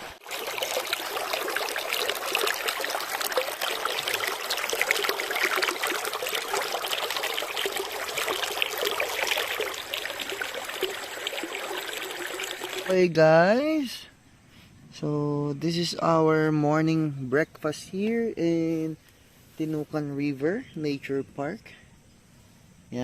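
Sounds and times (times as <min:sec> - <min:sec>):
river water flowing: 0:00.0 - 0:13.1.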